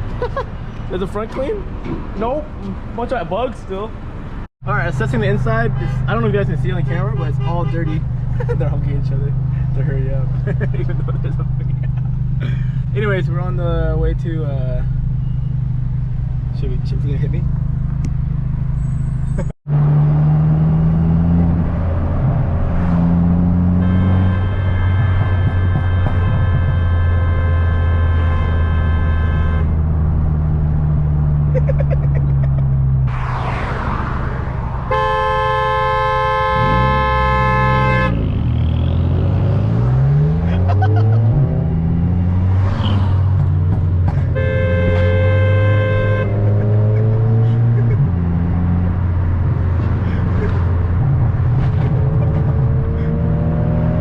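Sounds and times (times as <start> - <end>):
car engine droning: 0.0 - 54.0
car horn: 5.4 - 8.2, 23.7 - 29.8, 34.6 - 38.3, 44.1 - 46.7.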